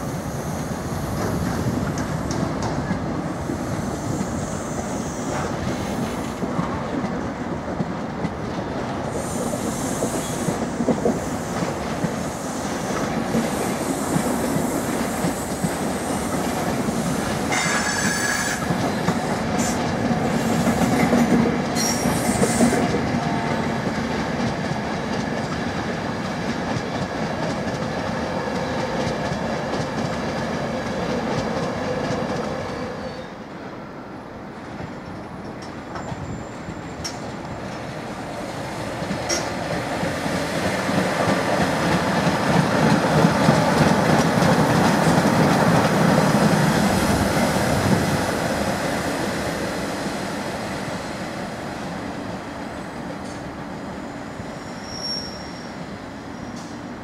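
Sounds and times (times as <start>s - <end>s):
train wheels on track: 0.0s - 57.0s
high-pitched wheel squeal: 54.6s - 55.8s.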